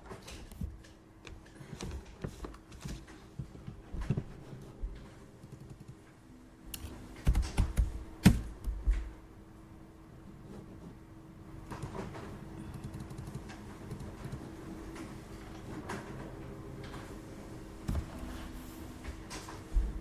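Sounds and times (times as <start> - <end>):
faint steady hum: 0.0 - 20.0
computer keyboard and mouse clicks: 5.4 - 6.1, 11.7 - 15.1
desk thumps: 17.8 - 18.3.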